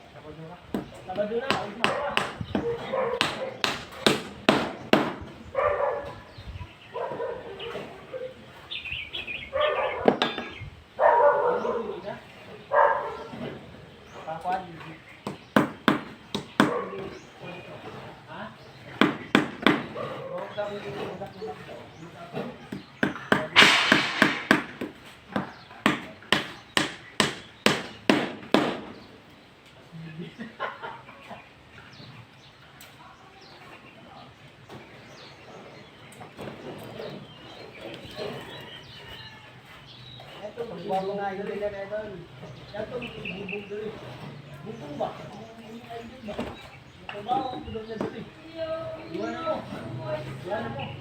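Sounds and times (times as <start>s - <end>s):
hammer striking nails: 0.7s - 5.3s, 15.2s - 16.8s, 19.0s - 20.0s, 22.7s - 28.9s
dog barking: 1.9s - 3.6s, 5.5s - 6.2s, 6.9s - 8.4s, 9.5s - 10.1s, 11.0s - 12.0s, 12.7s - 13.4s, 16.6s - 17.0s
sharp knock: 23.0s - 24.9s.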